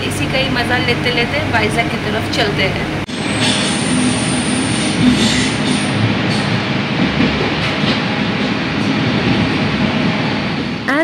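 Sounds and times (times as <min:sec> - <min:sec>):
train wheels rumbling on rails: 0:00.0 - 0:11.0
thin high whine: 0:03.1 - 0:06.4.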